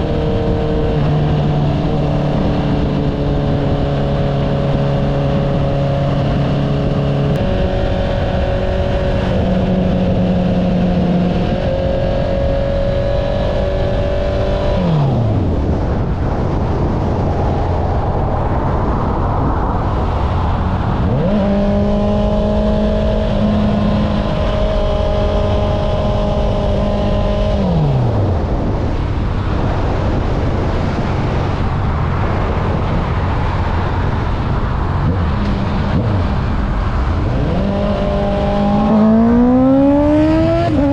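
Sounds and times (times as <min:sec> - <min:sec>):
motorcycle engine revving: 0:00.0 - 0:16.0, 0:20.7 - 0:28.4, 0:32.0 - 0:40.9
wind and road noise: 0:00.0 - 0:40.9.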